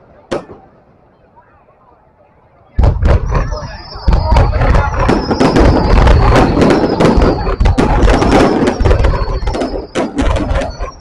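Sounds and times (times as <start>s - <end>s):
fireworks bangs and crackles: 0.1s - 0.9s, 2.8s - 11.0s.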